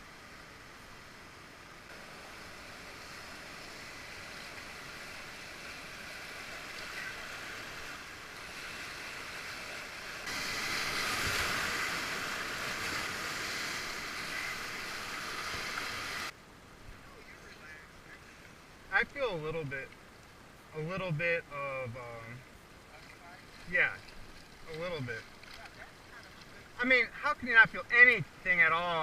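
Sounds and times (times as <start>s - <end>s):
whitewater river rushing: 0.9s - 16.3s.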